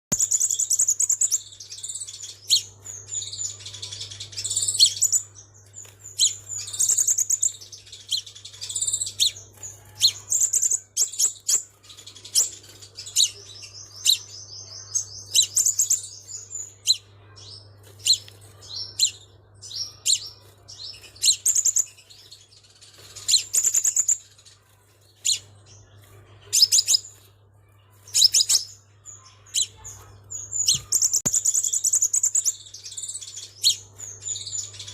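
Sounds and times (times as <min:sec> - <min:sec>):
bird chirping and trilling: 0:00.1 - 0:34.9.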